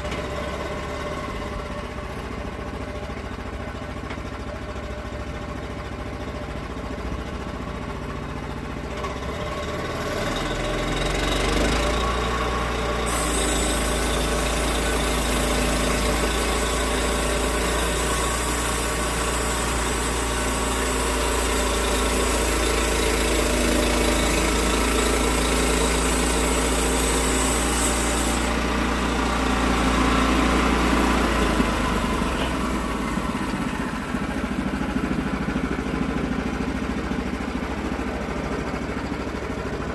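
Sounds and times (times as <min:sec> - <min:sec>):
sawmill engine running: 0:00.0 - 0:39.9
saw blade cutting log hiss: 0:12.9 - 0:29.0.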